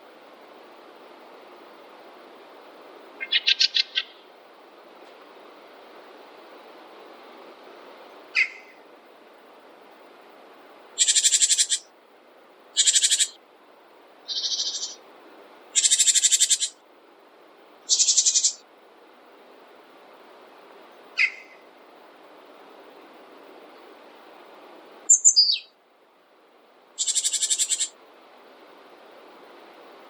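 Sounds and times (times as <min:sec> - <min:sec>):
steady background hiss: 0:00.0 - 0:30.0
bird trilling: 0:03.2 - 0:04.2, 0:08.4 - 0:08.7, 0:11.0 - 0:11.9, 0:12.8 - 0:13.4, 0:14.3 - 0:15.0, 0:15.8 - 0:16.8, 0:17.9 - 0:18.6, 0:21.2 - 0:21.6, 0:25.1 - 0:25.7, 0:27.0 - 0:28.0
bird chirp: 0:03.2 - 0:04.3, 0:08.3 - 0:08.8, 0:11.0 - 0:11.9, 0:12.8 - 0:13.4, 0:14.3 - 0:15.0, 0:15.8 - 0:16.8, 0:17.9 - 0:18.6, 0:21.2 - 0:21.6, 0:25.1 - 0:25.8, 0:27.0 - 0:28.0.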